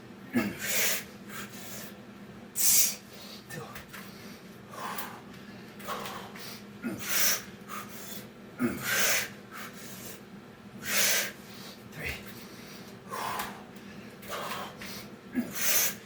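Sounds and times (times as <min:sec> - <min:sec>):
person breathing hard: 0:02.6 - 0:10.2, 0:10.8 - 0:16.0.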